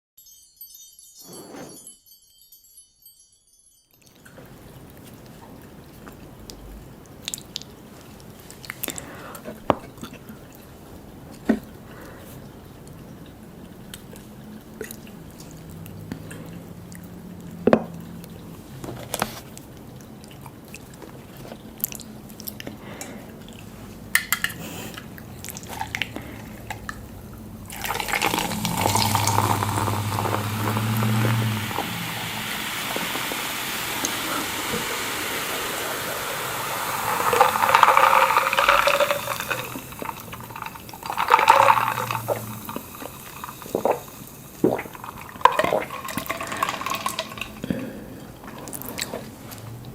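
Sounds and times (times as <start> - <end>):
running liquid splashing: 25.0 - 49.9.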